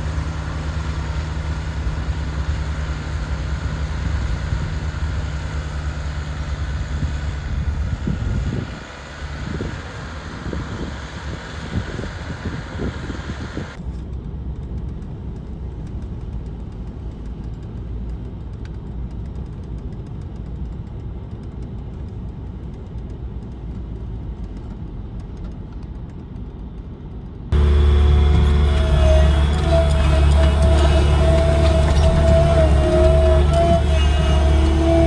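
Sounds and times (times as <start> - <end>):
vehicle engine low rumble: 0.0 - 35.0
loud steady tones: 27.6 - 35.0.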